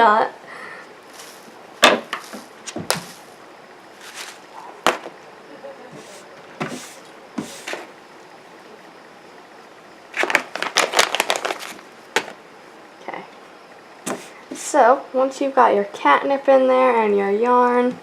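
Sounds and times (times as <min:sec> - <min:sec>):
small objects clicking and rustling: 0:10.2 - 0:12.4.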